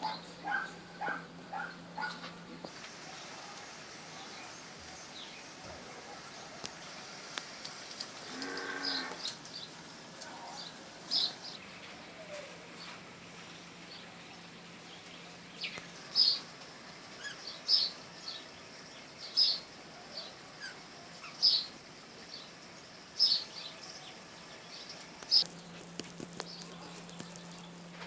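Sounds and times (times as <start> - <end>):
bird calling: 0.0 - 7.0, 7.9 - 13.0, 17.2 - 18.4.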